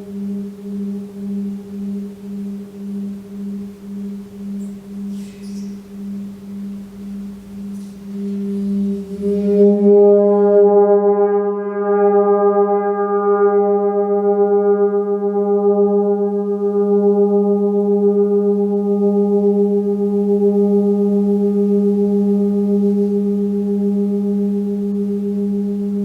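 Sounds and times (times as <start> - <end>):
gong ringing: 0.0 - 13.9.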